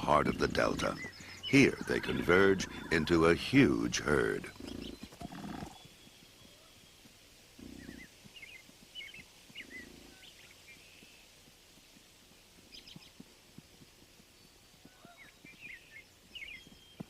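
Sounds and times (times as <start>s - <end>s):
small birds chirping: 0.0s - 17.0s
bison grunting: 0.1s - 5.7s.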